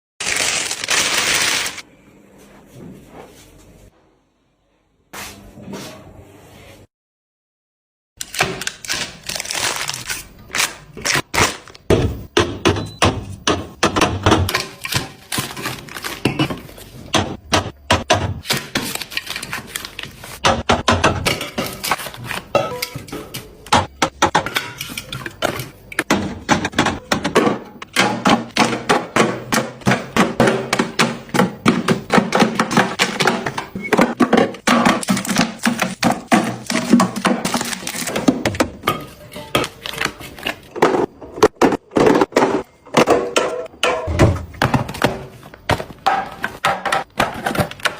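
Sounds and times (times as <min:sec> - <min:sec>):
food containers clicking and knocking: 0:11.7 - 0:47.9.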